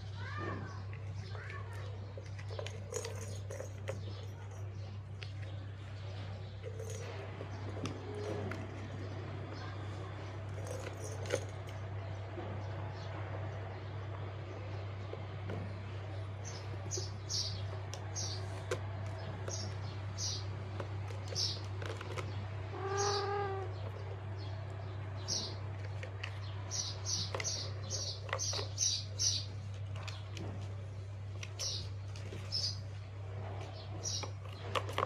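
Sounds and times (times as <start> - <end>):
small bird chirping: 16.4 - 30.3, 31.4 - 33.0, 33.6 - 34.8.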